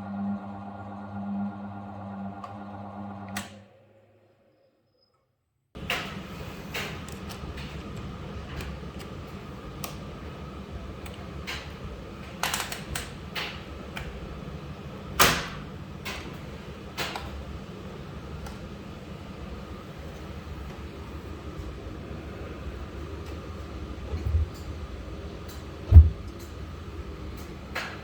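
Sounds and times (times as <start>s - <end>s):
washing machine rumbling: 18.8s - 27.8s
washing machine clicks and knocks: 25.8s - 26.6s.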